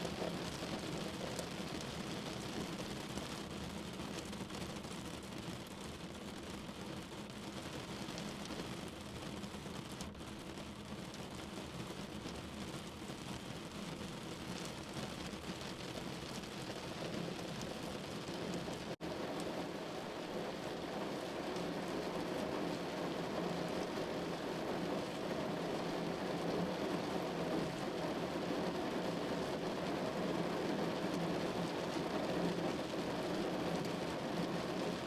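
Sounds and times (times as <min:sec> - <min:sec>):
rain on a window pane: 0:00.0 - 0:35.0.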